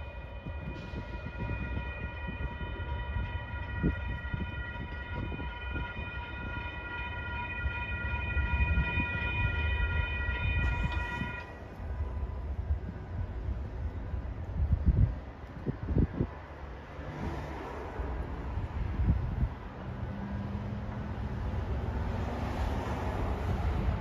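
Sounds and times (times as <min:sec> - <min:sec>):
crossing bell ringing: 0:00.0 - 0:12.5
train rumbling: 0:00.0 - 0:24.0.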